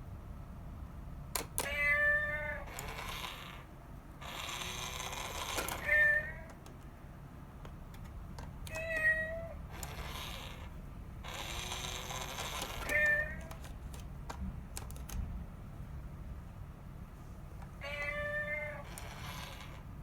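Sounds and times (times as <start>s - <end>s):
cat meowing: 1.6s - 2.8s, 5.7s - 6.6s, 8.7s - 10.6s, 12.8s - 13.6s, 17.8s - 19.8s
sharp clicks: 11.3s - 15.3s.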